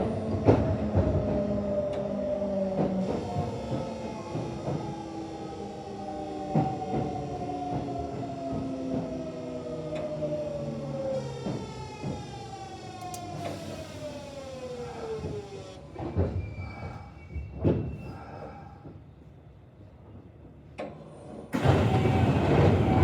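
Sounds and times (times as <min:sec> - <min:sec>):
train inverter whine: 0:02.8 - 0:16.0, 0:21.5 - 0:23.0.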